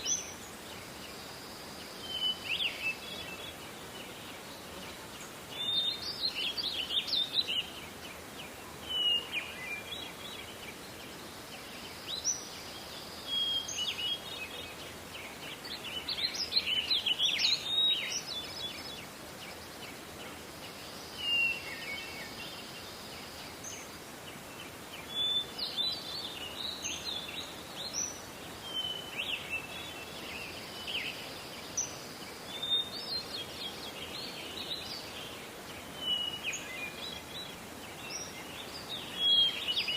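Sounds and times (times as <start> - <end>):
background hiss: 0.0 - 39.9
songbirds singing: 0.0 - 39.9.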